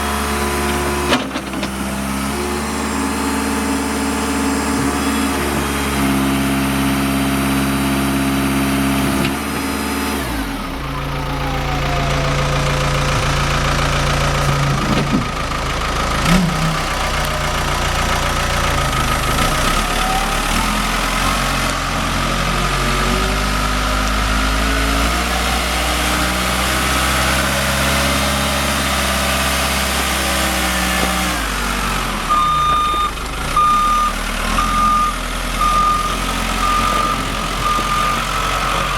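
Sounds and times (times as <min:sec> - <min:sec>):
backhoe diesel engine running: 0:00.0 - 0:38.9
reverse alarm beeping: 0:32.3 - 0:38.9.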